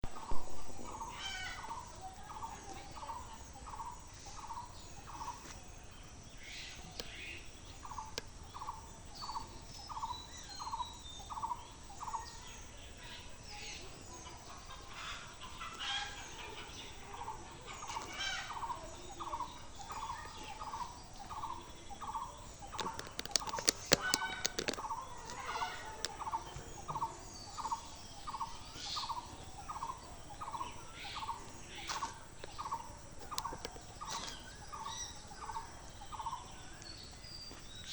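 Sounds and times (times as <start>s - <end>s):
burst of clicks: 22.8s - 24.9s.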